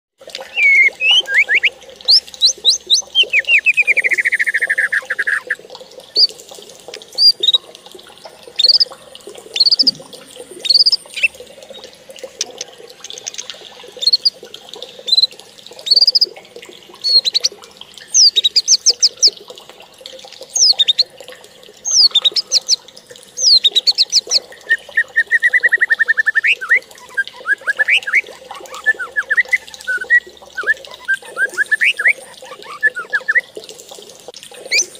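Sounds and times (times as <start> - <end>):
birds chirping: 0.5 - 6.4, 7.0 - 7.7, 8.5 - 14.4, 15.0 - 16.3, 17.0 - 19.4, 20.6 - 21.1, 21.8 - 22.8, 23.4 - 33.4, 34.6 - 34.9.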